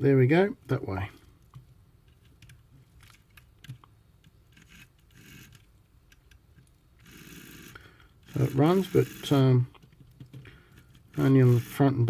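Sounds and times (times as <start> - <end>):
model train motor rasping: 4.5 - 5.6, 7.0 - 9.6, 10.8 - 12.0.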